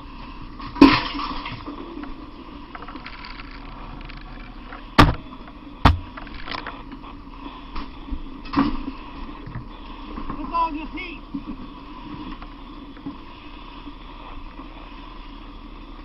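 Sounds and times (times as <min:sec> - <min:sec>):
steady background hum: 0:00.0 - 0:16.0
sharp knocks: 0:05.8 - 0:06.2.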